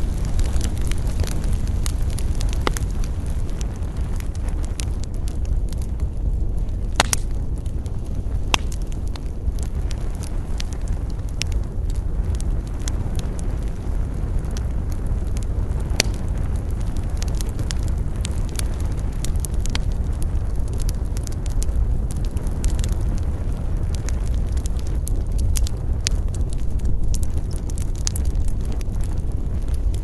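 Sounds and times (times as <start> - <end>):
campfire crackling: 0.0 - 30.0
low fire rumble: 0.0 - 30.0
sharp wood pops: 7.0 - 7.4, 8.5 - 8.8.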